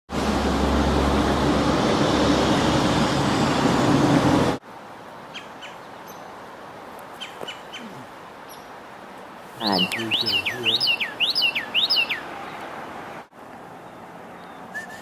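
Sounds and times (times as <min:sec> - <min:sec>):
bird chirps: 0:09.6 - 0:12.3.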